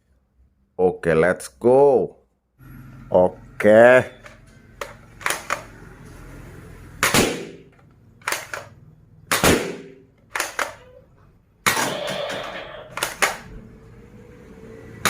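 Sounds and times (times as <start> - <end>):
toy gun shot: 5.2 - 5.6, 7.0 - 10.9, 11.7 - 13.5
toy gun cocking clicks: 10.3 - 10.9.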